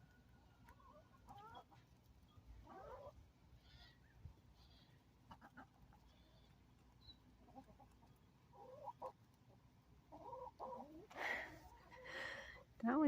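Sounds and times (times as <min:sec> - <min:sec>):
hens clucking: 0:00.0 - 0:12.7.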